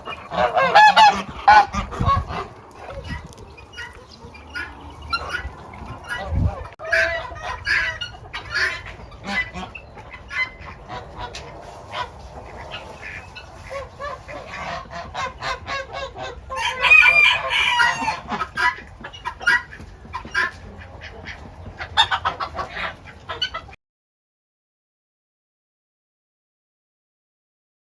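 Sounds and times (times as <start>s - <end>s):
chickens clucking: 0.0s - 23.8s
rooster crowing: 16.6s - 18.2s.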